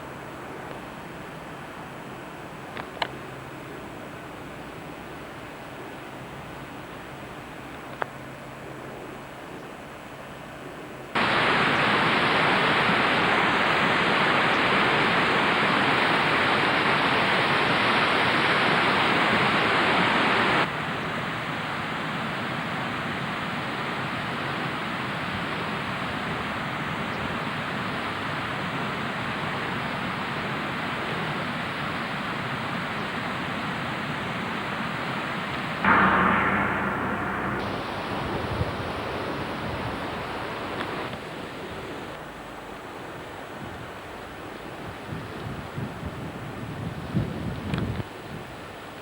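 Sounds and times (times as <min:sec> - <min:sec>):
steady rushing noise: 0:35.8 - 0:39.2.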